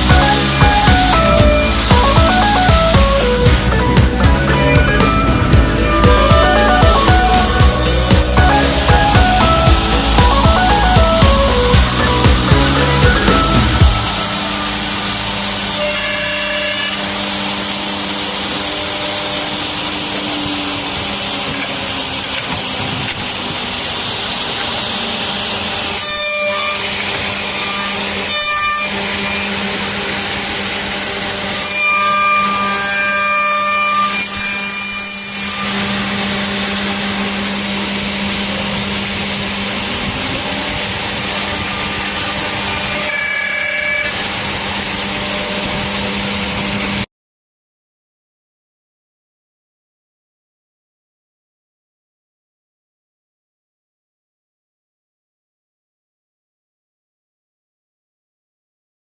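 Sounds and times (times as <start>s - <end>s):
milling machine cutting wood: 0.0s - 47.1s.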